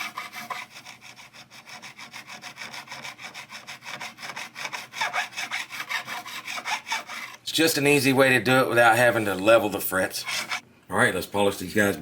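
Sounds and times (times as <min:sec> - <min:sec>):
metal file scraping on fret: 0:00.0 - 0:07.4, 0:09.9 - 0:10.6.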